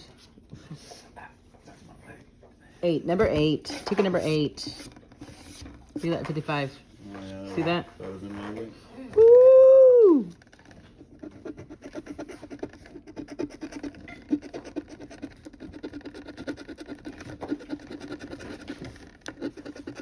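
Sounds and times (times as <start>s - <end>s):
coin scratching lottery ticket: 2.8s - 6.7s, 11.0s - 20.0s.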